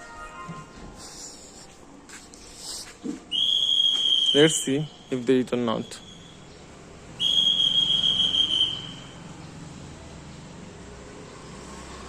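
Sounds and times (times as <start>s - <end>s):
high-pitched whistling tone: 3.3s - 6.5s, 7.2s - 9.2s.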